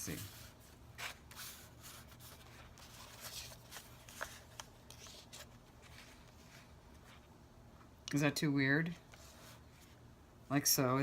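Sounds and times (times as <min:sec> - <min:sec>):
paper rustling: 0:00.0 - 0:07.2
low room hum: 0:00.0 - 0:11.0.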